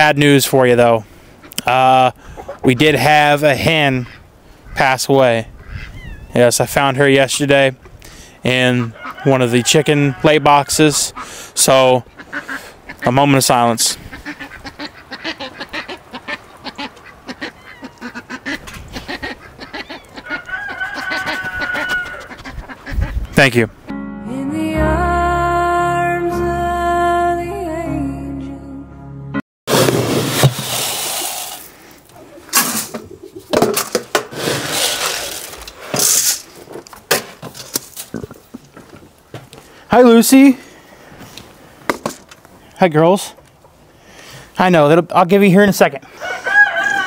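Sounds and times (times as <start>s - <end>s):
chickens clucking: 1.4s - 3.0s, 7.8s - 23.3s, 32.0s - 34.0s
ducks quacking: 3.7s - 6.2s, 8.6s - 23.4s
wind buffeting microphone: 5.4s - 6.4s, 21.4s - 23.4s
held high tone: 23.9s - 29.4s.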